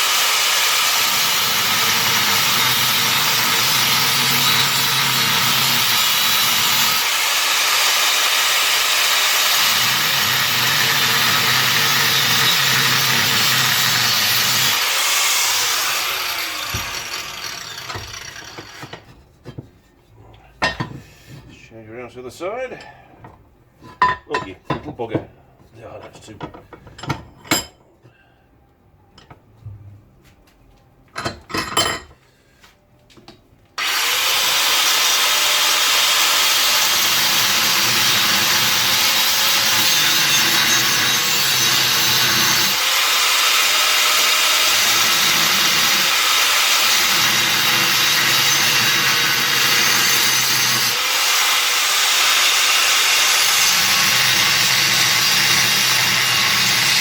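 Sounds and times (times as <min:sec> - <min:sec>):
power tool cutting sheet steel: 0:00.0 - 0:19.0, 0:33.8 - 0:57.0.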